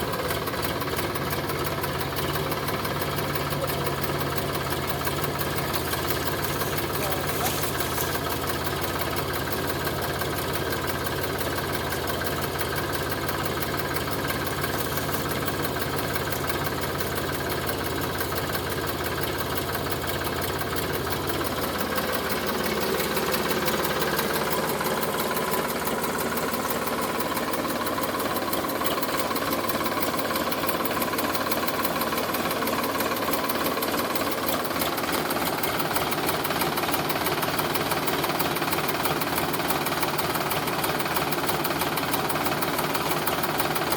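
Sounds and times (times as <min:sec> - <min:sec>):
tractor diesel engine running: 0:00.0 - 0:43.9
higher engine tone: 0:02.3 - 0:09.5, 0:14.0 - 0:29.3.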